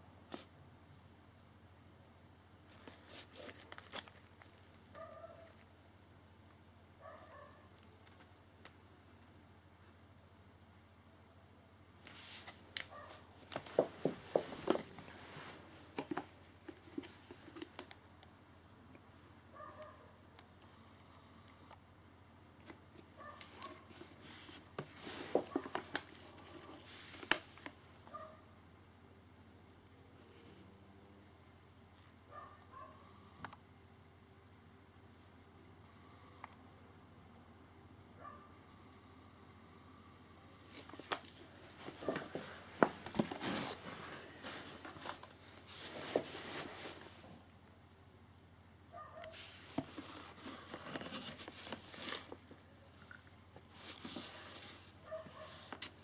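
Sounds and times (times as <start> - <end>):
rustling: 40.6 - 47.4, 49.2 - 56.0.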